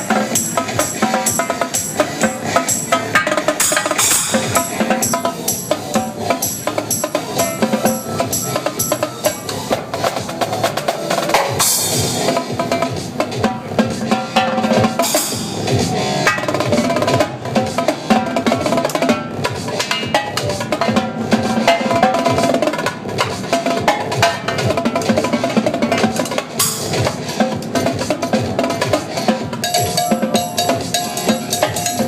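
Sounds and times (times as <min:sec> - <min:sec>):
electronic dance music: 0:00.0 - 0:32.0
live drum rolls: 0:00.0 - 0:32.0
cymbal crashes: 0:11.3 - 0:13.0.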